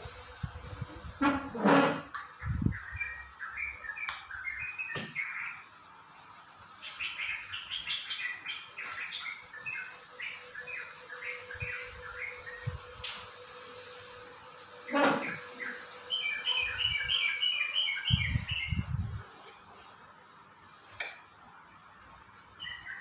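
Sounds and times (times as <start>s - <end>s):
small birds chirping: 0.9s - 5.9s, 6.6s - 12.9s, 14.8s - 19.2s, 22.5s - 23.0s.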